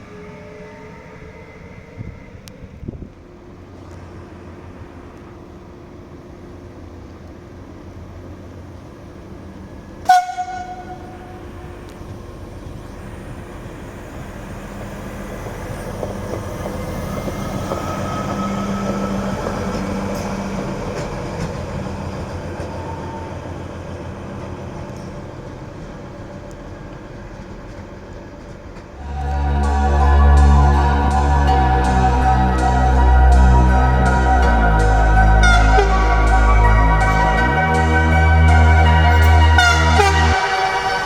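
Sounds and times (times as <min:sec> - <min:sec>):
train passing: 0:00.0 - 0:41.0
train horn blast: 0:10.0 - 0:12.5, 0:29.0 - 0:41.0.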